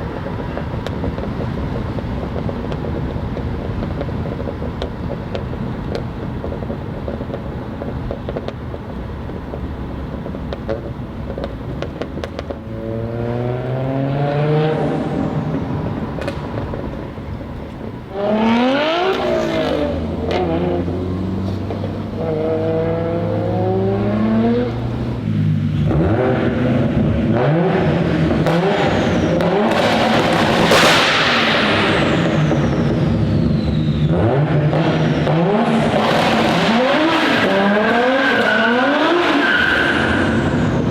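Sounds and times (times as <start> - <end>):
sharp exhaust pops: 0.0 - 25.1, 25.8 - 40.9
car engine revving and accelerating: 10.7 - 17.3, 18.1 - 40.9.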